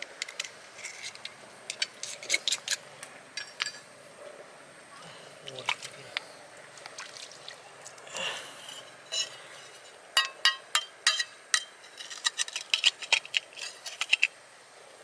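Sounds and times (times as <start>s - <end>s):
soft wet scrapes: 5.1s - 10.1s
oyster shells clinking: 8.8s - 14.4s.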